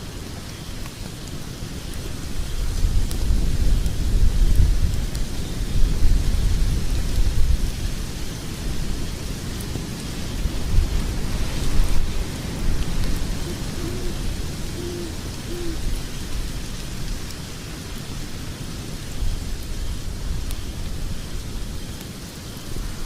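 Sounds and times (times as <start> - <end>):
fire crackling in fireplace: 0.0 - 23.0
low hoot-like tones: 13.3 - 16.0.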